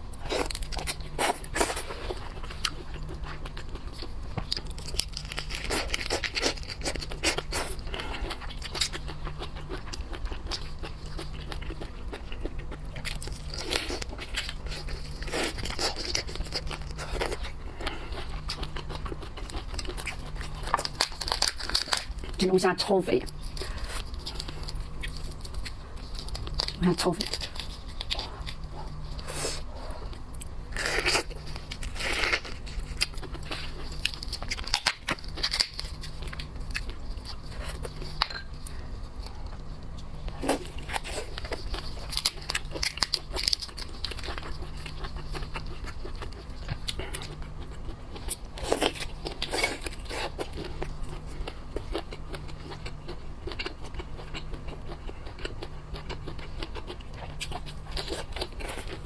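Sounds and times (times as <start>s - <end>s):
biting and chewing: 0.0s - 22.5s, 23.3s - 59.0s
steady low hum: 0.0s - 59.0s
meat tearing: 0.3s - 22.4s, 30.7s - 38.2s.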